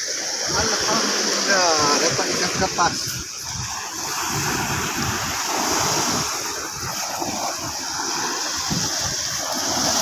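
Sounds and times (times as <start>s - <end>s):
surf washing on shore: 0.0s - 10.0s
wind buffeting microphone: 0.4s - 10.0s.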